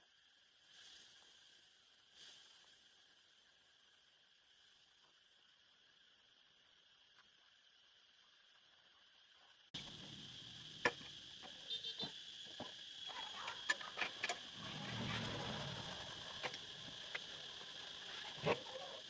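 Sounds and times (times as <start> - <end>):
high insect-like hum: 0.0 - 19.0.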